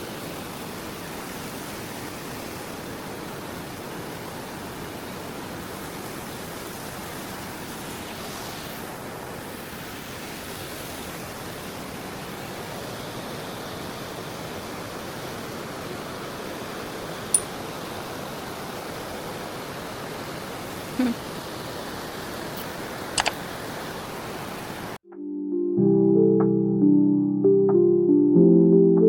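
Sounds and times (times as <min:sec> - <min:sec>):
water rushing: 0:00.0 - 0:25.0.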